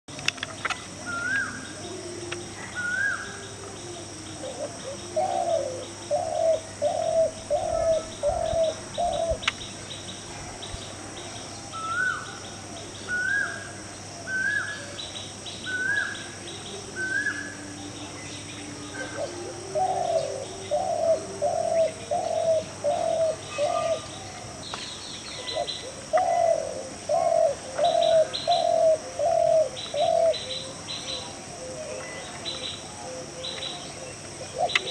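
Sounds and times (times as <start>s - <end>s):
steady high-pitched hiss: 0.1s - 34.9s
low hooting bird calls: 1.0s - 9.7s, 18.6s - 24.3s, 25.4s - 34.9s.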